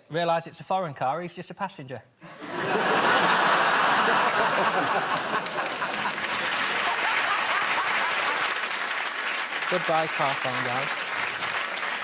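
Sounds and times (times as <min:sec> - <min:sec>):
audience laughing: 0:02.3 - 0:09.1
audience applauding: 0:02.9 - 0:12.0.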